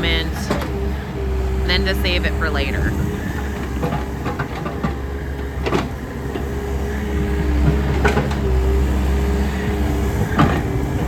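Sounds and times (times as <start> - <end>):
excavator diesel engine droning: 0.0 - 11.0
hydraulics whining: 0.0 - 11.0.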